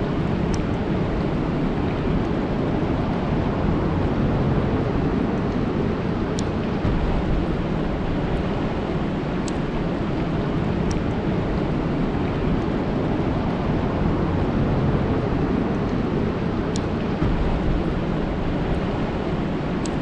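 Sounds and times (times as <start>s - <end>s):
rain falling on a lake: 0.0s - 20.0s.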